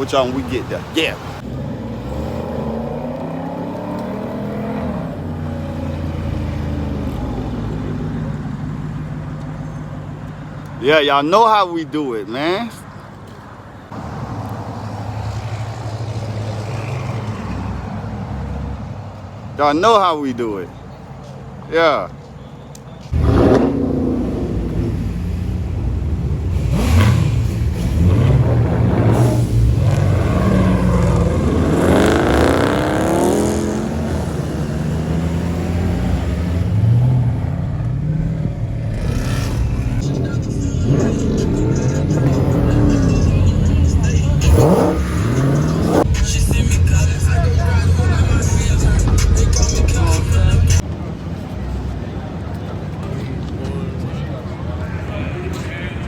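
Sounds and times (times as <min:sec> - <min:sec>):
car engine rumbling: 0:23.1 - 0:52.6.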